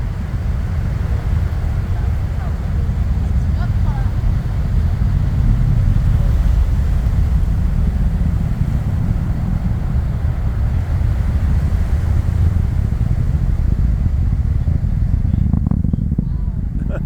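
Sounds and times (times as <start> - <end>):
deep rocket launch rumble: 0.0 - 17.0.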